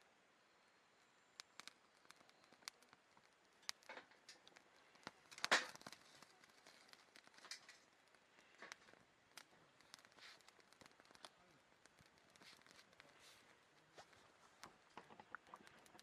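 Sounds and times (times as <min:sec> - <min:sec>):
campfire crackling and popping: 0:01.2 - 0:16.0.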